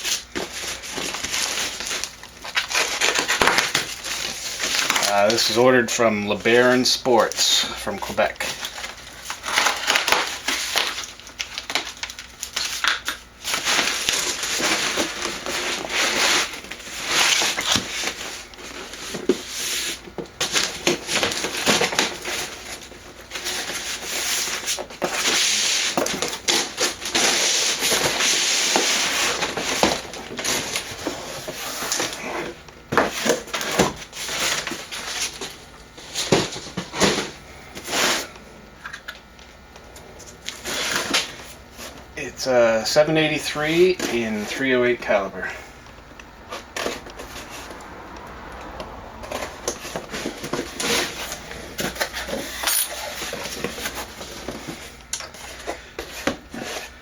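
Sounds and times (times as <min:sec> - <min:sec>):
cardboard box rustling and tearing: 0:00.1 - 0:05.6, 0:08.5 - 0:12.9, 0:13.5 - 0:35.5, 0:49.2 - 0:52.5.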